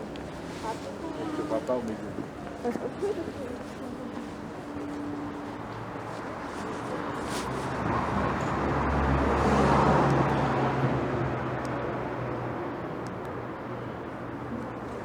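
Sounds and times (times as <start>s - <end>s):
vehicle passing by: 5.9s - 12.8s.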